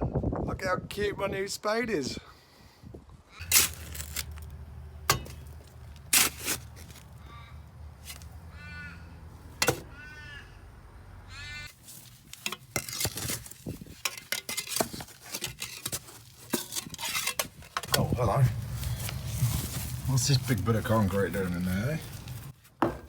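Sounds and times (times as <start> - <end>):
metal spade scraping rubble: 3.4 - 8.5, 9.4 - 9.9, 11.8 - 18.1
low hum: 3.4 - 11.6
crow cawing: 6.9 - 11.8.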